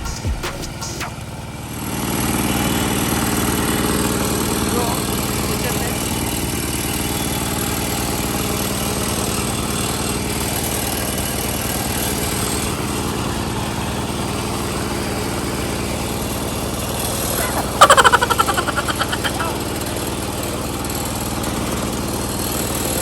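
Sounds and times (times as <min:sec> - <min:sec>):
fast pulsing: 0:00.0 - 0:01.3, 0:17.3 - 0:20.0
small engine idling: 0:00.0 - 0:23.0.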